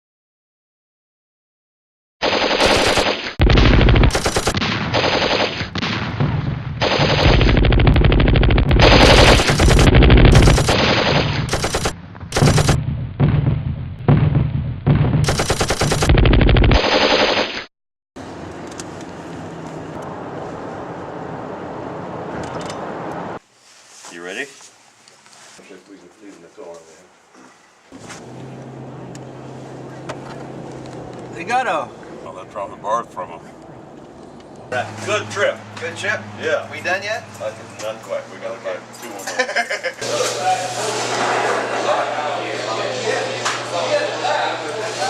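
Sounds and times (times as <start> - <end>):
machine-gun fire: 2.2 - 17.7.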